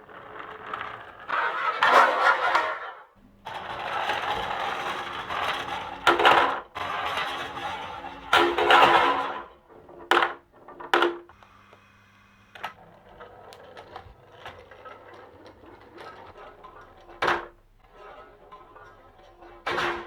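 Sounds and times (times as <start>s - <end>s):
marbles rolling on wooden run: 3.5s - 11.3s, 12.8s - 20.0s.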